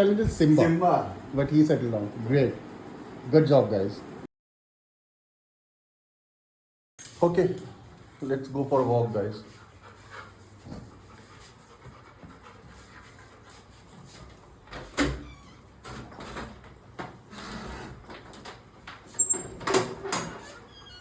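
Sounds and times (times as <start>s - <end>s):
door squeak: 14.8s - 16.5s, 19.1s - 21.0s.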